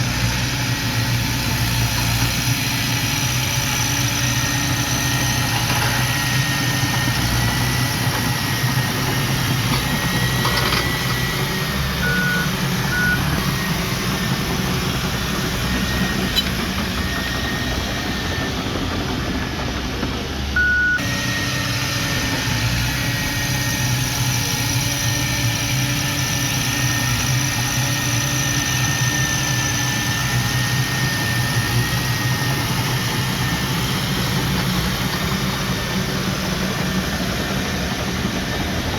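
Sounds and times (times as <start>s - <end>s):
diesel engine running: 0.0s - 38.9s
short beeps: 12.0s - 13.4s, 20.6s - 21.0s.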